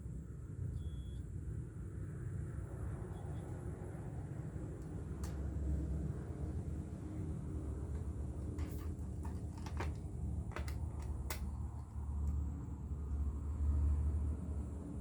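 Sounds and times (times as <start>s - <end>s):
sharp clicks and knocks: 7.9s - 12.4s.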